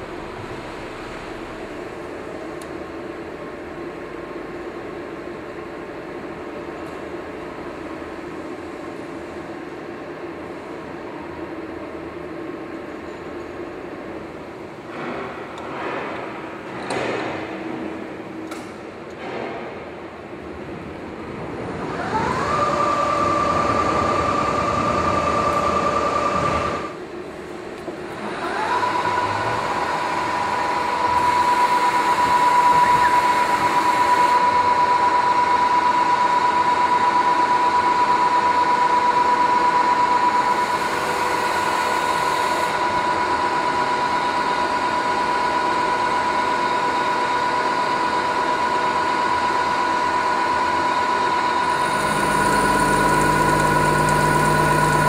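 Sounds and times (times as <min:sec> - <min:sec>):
milling machine whine: 0:21.5 - 0:27.0, 0:28.0 - 0:55.0.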